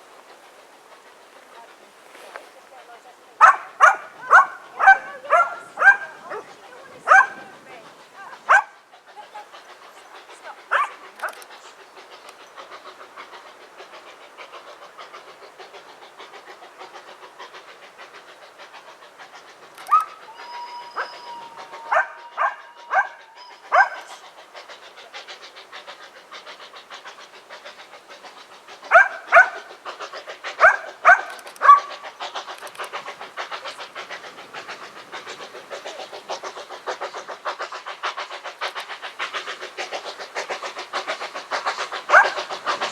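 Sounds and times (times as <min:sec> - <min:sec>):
train clattering: 0:00.0 - 0:42.9
dog barking: 0:03.4 - 0:06.5, 0:07.1 - 0:07.4, 0:08.5 - 0:08.8, 0:10.7 - 0:11.4, 0:21.8 - 0:24.1, 0:28.9 - 0:29.6, 0:30.6 - 0:31.9.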